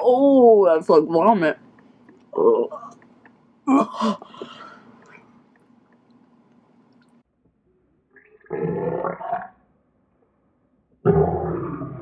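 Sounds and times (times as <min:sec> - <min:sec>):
woman gagging and retching: 0:02.3 - 0:04.5, 0:08.2 - 0:09.5.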